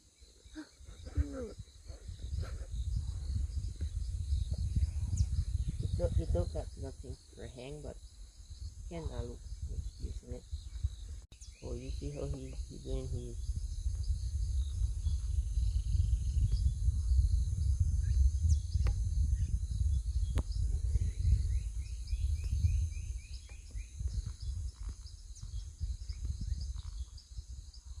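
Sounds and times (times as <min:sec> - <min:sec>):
high insect drone: 0:00.0 - 0:28.0
low rumble on microphone: 0:00.0 - 0:28.0.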